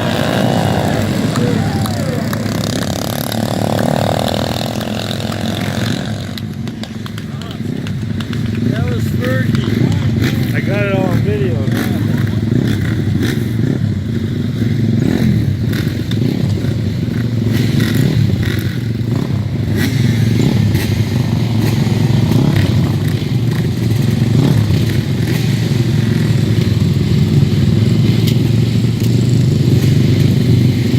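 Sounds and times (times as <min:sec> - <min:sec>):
motorcycle engine running: 0:00.0 - 0:30.9
clicks and clatter: 0:04.6 - 0:08.7.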